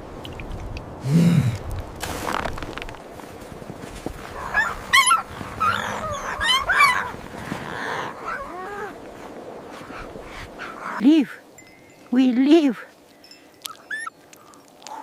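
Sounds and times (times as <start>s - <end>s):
dog yipping and whining: 4.6s - 7.1s, 13.7s - 14.1s.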